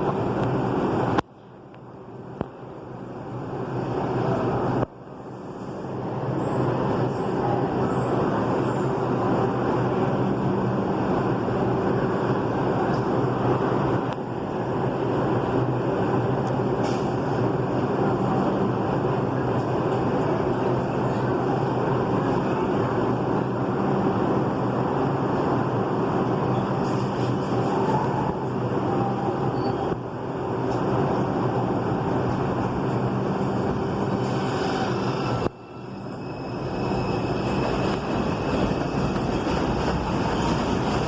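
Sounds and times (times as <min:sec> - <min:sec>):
subway train rumbling: 0:00.0 - 0:41.0.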